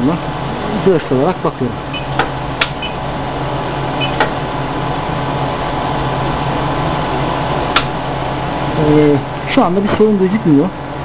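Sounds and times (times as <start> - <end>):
machine hum and hiss: 0.0 - 11.0
sharp clicks: 7.7 - 7.9.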